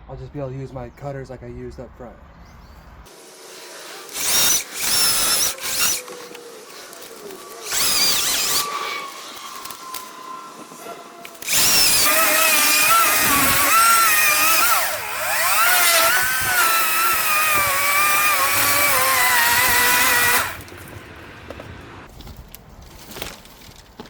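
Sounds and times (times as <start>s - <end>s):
electric chainsaw cutting branches: 3.1s - 21.2s.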